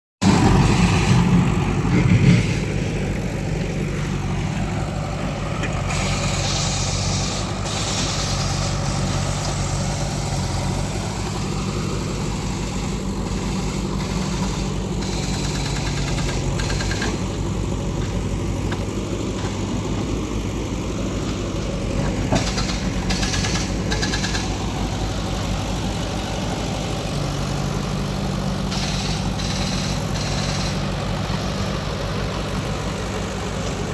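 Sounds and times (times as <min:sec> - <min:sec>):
backhoe diesel engine running: 0:00.2 - 0:33.9.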